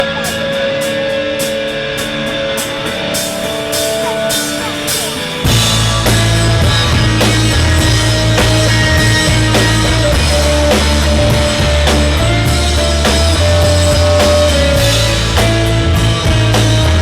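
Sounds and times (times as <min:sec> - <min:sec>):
bass guitar: 0:00.0 - 0:17.0
drums: 0:00.0 - 0:17.0
electric guitar playing: 0:00.0 - 0:17.0
ticking cymbal beat: 0:00.0 - 0:17.0.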